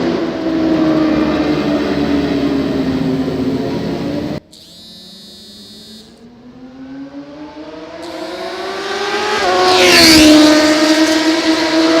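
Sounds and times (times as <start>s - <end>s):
motorcycle engine accelerating past: 6.4s - 12.0s.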